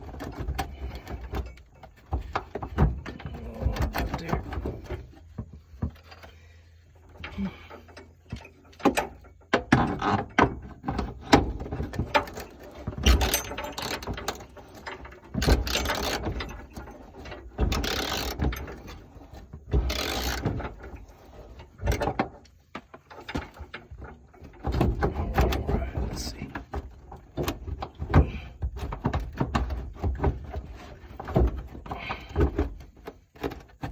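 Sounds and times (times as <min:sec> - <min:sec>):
hand tools clanking on metal: 0:00.0 - 0:33.9
ratchet clicking: 0:17.7 - 0:18.4, 0:19.8 - 0:20.4.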